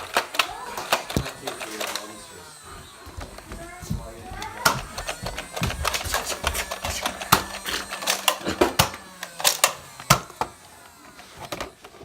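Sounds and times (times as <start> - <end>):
plastic toy blaster clicking: 0.0 - 2.2, 4.6 - 12.0.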